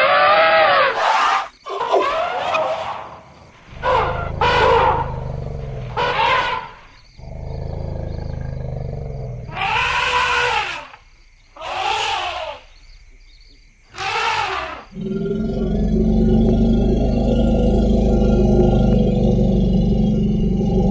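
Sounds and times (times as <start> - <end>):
elephants trumpeting: 0.0 - 7.0, 9.4 - 11.0, 11.6 - 12.7, 14.0 - 19.8.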